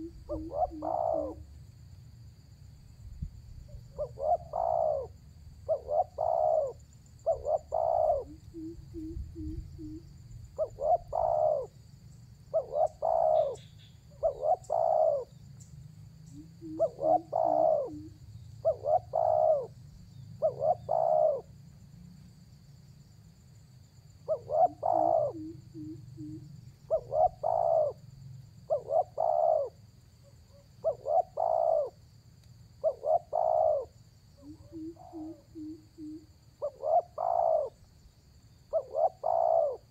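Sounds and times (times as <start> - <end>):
dove cooing: 0.0 - 1.6, 3.7 - 11.8, 12.5 - 15.4, 16.2 - 19.8, 20.4 - 21.5, 24.2 - 28.0, 28.6 - 32.0, 32.8 - 37.8, 38.7 - 39.9.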